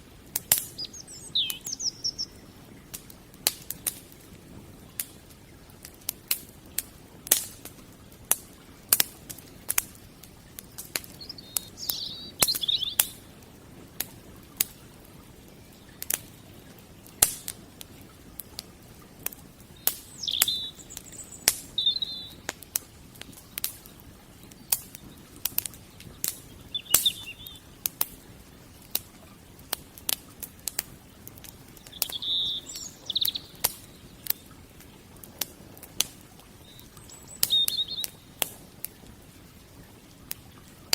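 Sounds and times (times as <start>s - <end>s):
wood fire crackling and popping: 0.0s - 40.9s
bird chirping: 0.7s - 2.5s, 11.1s - 13.2s, 19.8s - 22.4s, 26.3s - 27.7s, 31.8s - 34.4s, 36.6s - 38.3s.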